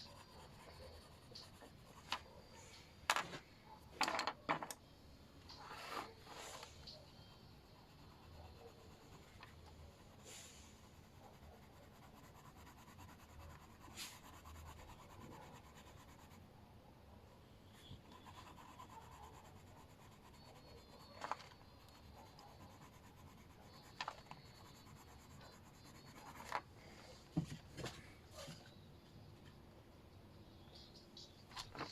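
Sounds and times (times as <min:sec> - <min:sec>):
colouring strokes scratching paper: 0:00.0 - 0:02.1, 0:05.6 - 0:16.4, 0:17.9 - 0:26.6.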